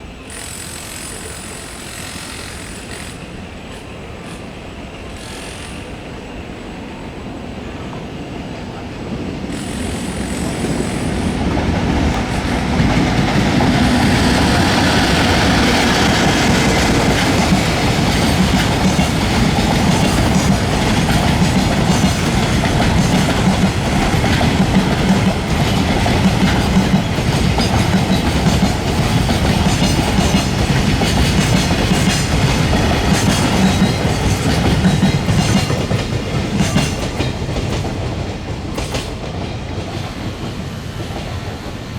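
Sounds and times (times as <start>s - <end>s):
freight train rumble: 0.0s - 41.9s
wheels clacking over rail joints: 8.8s - 41.9s.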